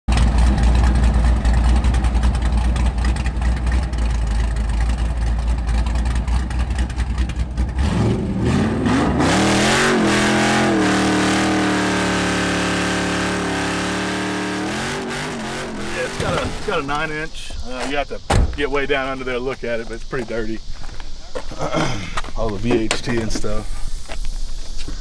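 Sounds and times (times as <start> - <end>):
car engine idling and revving: 0.1 - 17.4
tyres spinning and hissing: 15.0 - 18.2.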